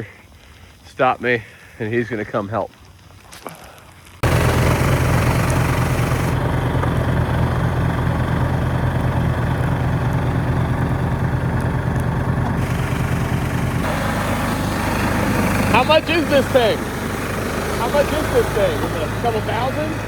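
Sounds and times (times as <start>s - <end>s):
snowblower engine running: 4.2s - 20.0s.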